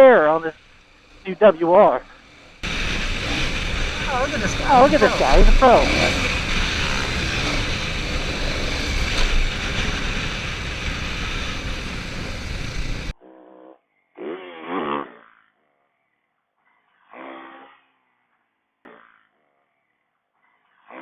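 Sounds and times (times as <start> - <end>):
dirt bike engines: 0.0 - 13.1
wind noise on microphone: 2.6 - 13.1
indistinct voice: 4.0 - 6.4.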